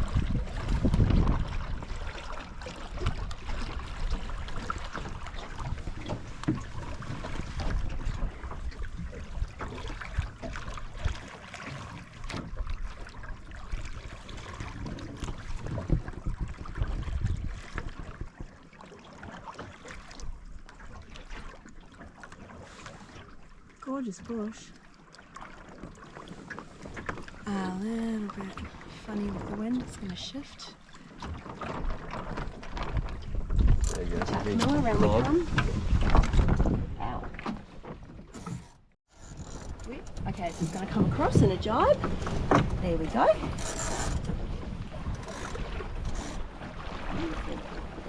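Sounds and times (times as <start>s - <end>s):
wind buffeting microphone: 0.0s - 11.2s, 14.5s - 18.4s, 32.4s - 37.4s, 39.7s - 48.0s
water washing along a hull: 0.0s - 48.0s.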